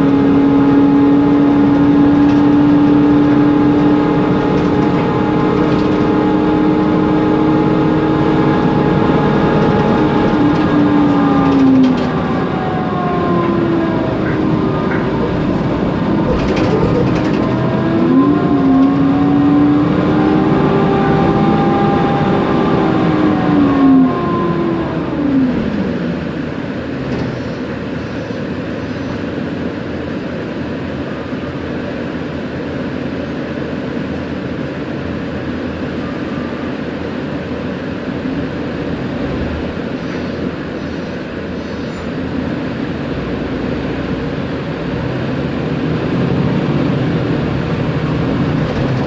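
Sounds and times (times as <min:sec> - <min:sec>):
cooling fan running: 0:00.0 - 0:28.8
bus engine and drivetrain whine: 0:00.0 - 0:49.0.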